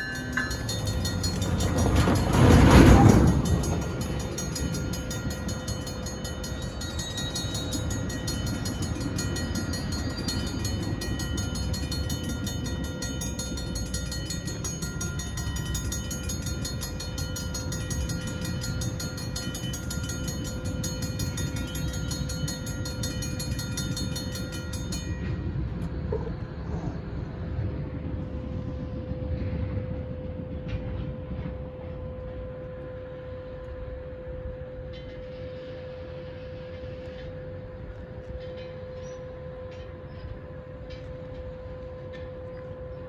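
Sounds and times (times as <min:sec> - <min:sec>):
train rumbling: 0:00.0 - 0:43.0.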